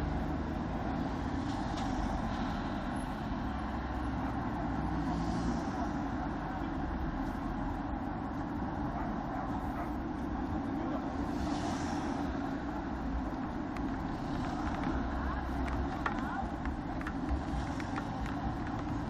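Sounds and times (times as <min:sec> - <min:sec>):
road and wind noise: 0:00.0 - 0:19.0.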